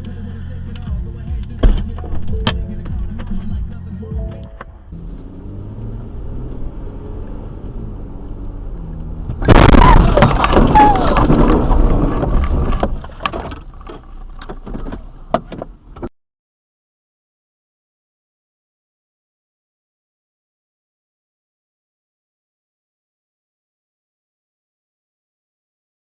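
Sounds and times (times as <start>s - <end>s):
car driving rumble: 0.0s - 16.1s
car crash: 9.1s - 15.8s
crunching and rattling knocks: 9.2s - 16.1s.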